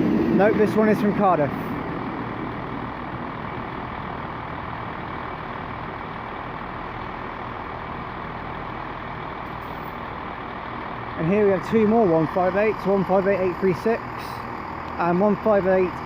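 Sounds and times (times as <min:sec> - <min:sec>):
diesel engine low rumble: 0:00.0 - 0:16.0.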